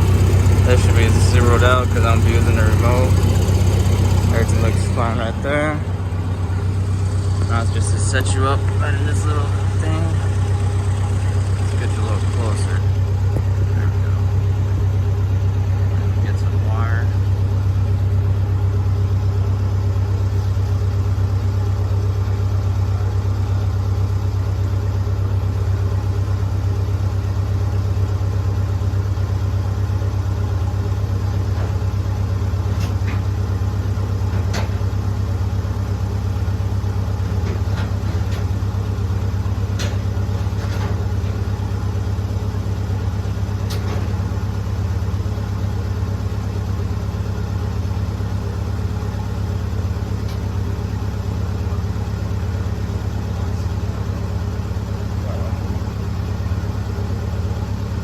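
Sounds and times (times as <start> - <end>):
welder engine humming: 0.0 - 24.2.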